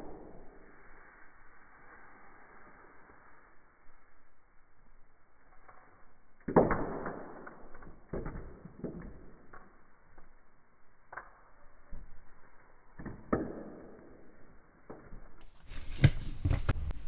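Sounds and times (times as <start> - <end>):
chalk cracking: 15.7 - 17.0.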